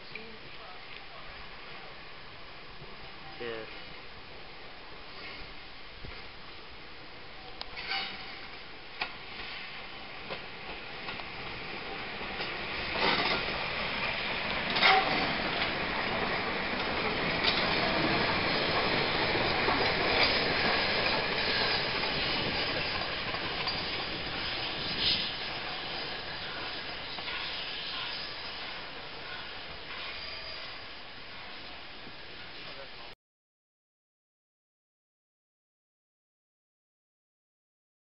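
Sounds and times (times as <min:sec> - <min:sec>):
train rumbling: 0:00.2 - 0:32.9
wheels clacking over rail joints: 0:07.7 - 0:09.6, 0:10.2 - 0:30.8.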